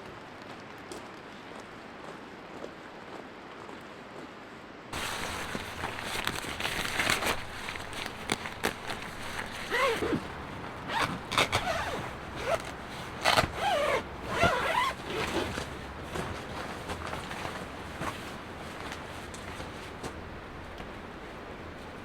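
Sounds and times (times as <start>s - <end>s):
steady low background noise: 0.0s - 22.0s
zipper pulled: 5.0s - 18.2s.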